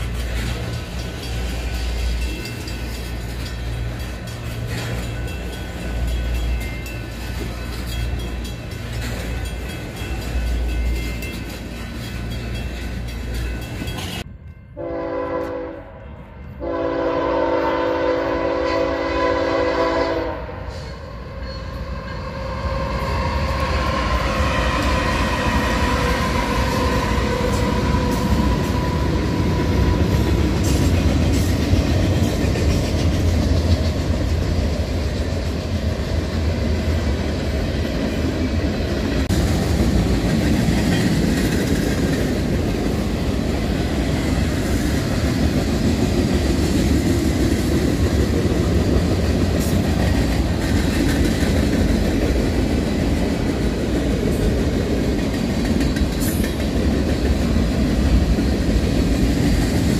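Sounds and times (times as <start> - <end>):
locomotive air horn blasts: 14.8 - 20.9.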